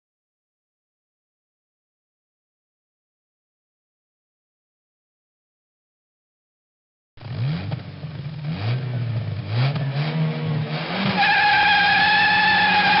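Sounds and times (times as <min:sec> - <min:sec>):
engine revving in blips: 0:07.2 - 0:13.0.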